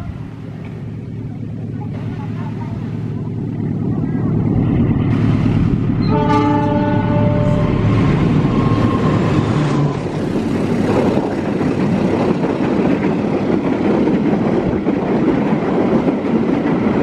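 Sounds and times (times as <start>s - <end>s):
train passing: 0.0s - 17.0s
train horn blast: 6.0s - 9.5s.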